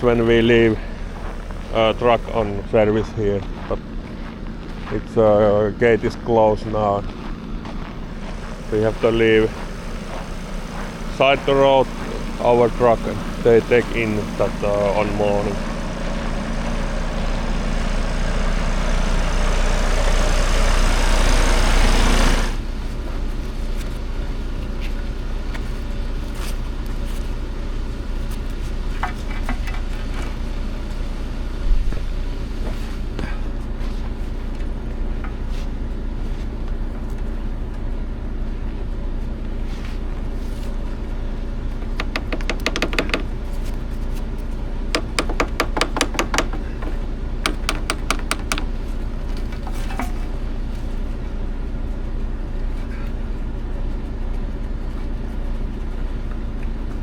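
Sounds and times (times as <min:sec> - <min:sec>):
truck engine running: 0:00.0 - 0:57.0
clicks: 0:42.0 - 0:43.3, 0:47.5 - 0:48.7.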